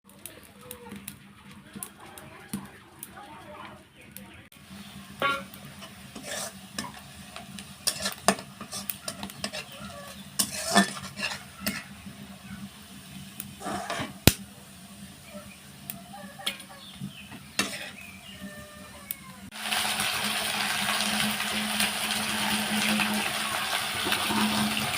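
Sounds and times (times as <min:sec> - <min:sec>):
utensil scraping in a pan: 0:04.6 - 0:14.4, 0:15.3 - 0:19.0, 0:19.7 - 0:24.9.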